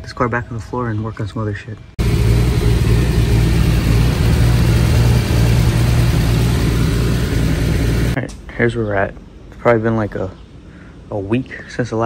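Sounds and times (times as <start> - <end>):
car engine running steadily: 2.0 - 8.2.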